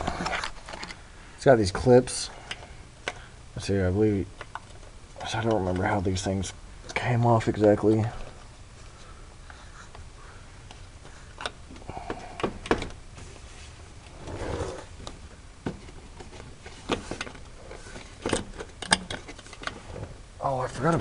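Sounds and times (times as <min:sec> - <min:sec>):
scraping rustle: 0:13.2 - 0:15.0.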